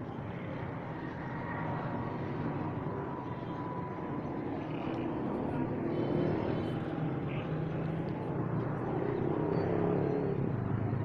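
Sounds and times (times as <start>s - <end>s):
outdoor background din: 0.0s - 11.0s.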